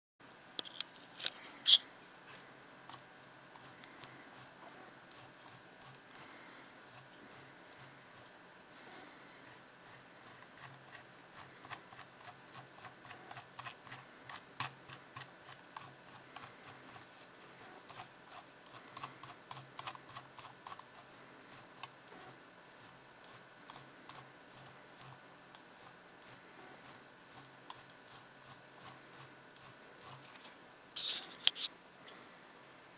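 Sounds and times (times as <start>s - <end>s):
mouse scroll wheel squeaking: 9.4s - 30.3s.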